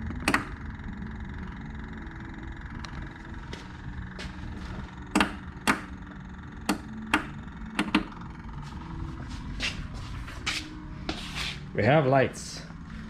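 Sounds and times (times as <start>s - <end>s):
sharp clicks and knocks: 0.1s - 0.6s, 5.1s - 6.0s, 6.6s - 8.2s.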